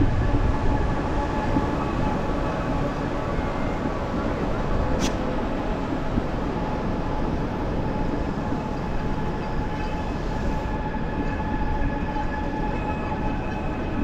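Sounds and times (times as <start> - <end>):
wind rumble on microphone: 0.0 - 12.4.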